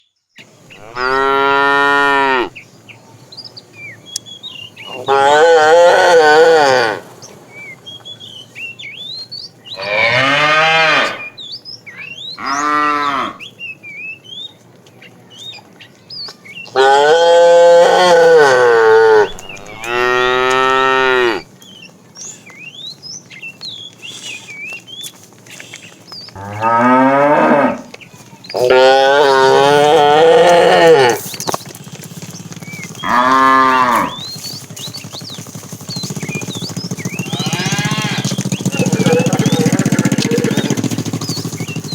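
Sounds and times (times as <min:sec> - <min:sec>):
cattle mooing: 0:00.7 - 0:02.5, 0:04.9 - 0:07.0, 0:09.8 - 0:11.3, 0:12.4 - 0:13.4, 0:16.8 - 0:21.5, 0:26.4 - 0:28.0, 0:28.6 - 0:31.3, 0:33.0 - 0:34.3, 0:37.3 - 0:40.8.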